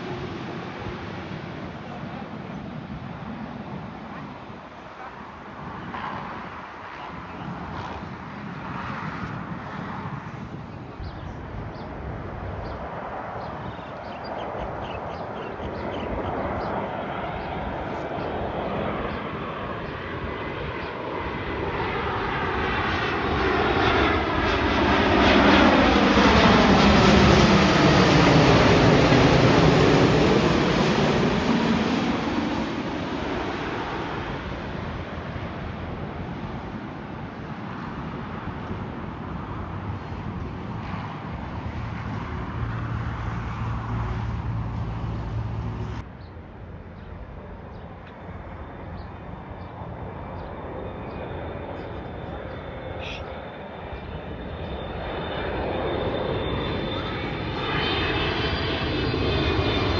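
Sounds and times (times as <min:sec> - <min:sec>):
jet airliner passing overhead: 0:00.0 - 0:59.9.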